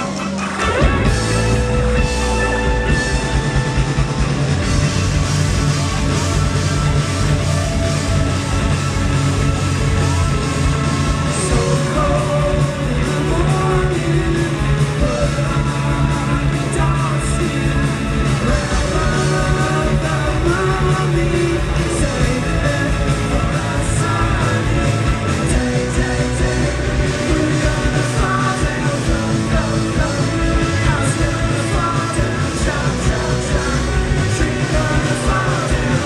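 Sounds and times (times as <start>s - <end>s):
live rock band playing: 0.0s - 36.0s
person singing: 9.7s - 36.0s.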